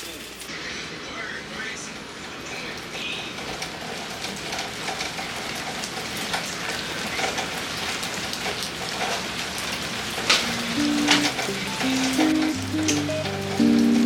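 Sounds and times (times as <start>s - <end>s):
steady rain falling: 0.0s - 14.0s
raindrops ticking: 2.6s - 14.0s.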